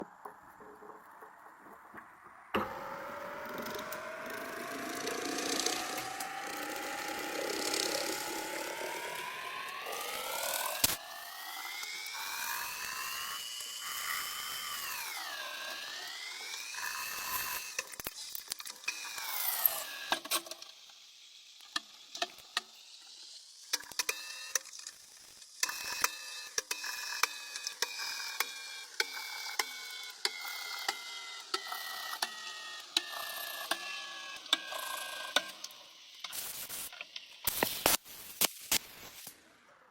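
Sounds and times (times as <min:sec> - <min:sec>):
high-pitched motor whine: 0:02.5 - 0:20.4, 0:25.7 - 0:36.9
sharp ticks: 0:03.2 - 0:20.3.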